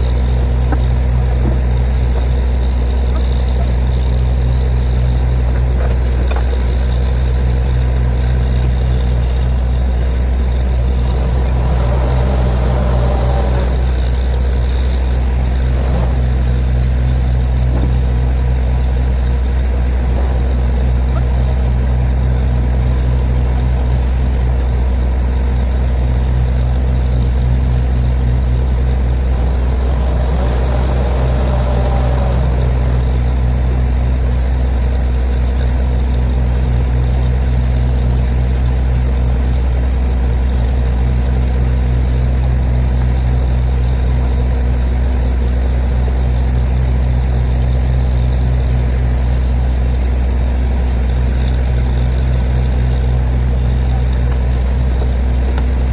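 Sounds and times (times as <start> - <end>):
diesel engine droning: 0.0 - 55.9.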